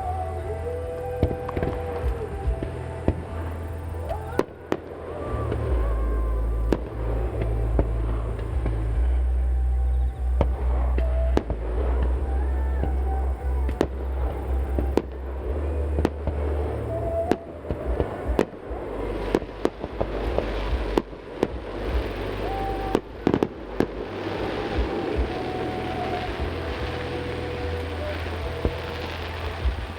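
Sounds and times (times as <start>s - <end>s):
fireworks whistling: 0.0s - 29.9s
fireworks bangs and cracks: 12.8s - 29.9s.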